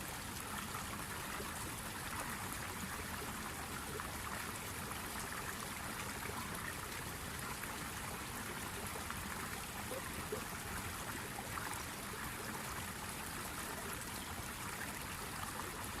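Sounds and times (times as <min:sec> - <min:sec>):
rushing trickling water noise: 0:00.0 - 0:16.0.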